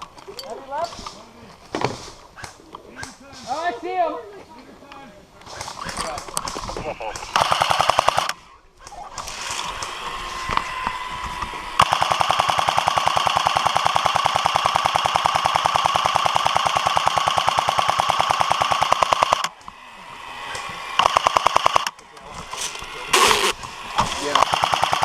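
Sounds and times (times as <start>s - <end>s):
airsoft gun firing full-auto: 7.3s - 8.4s, 11.8s - 19.5s, 21.0s - 22.0s, 23.2s - 25.0s.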